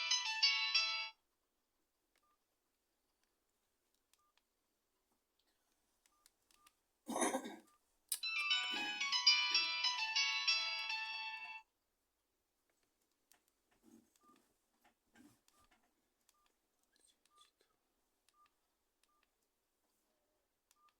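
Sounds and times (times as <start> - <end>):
phone ringtone melody: 0.0 - 1.2, 8.2 - 11.6.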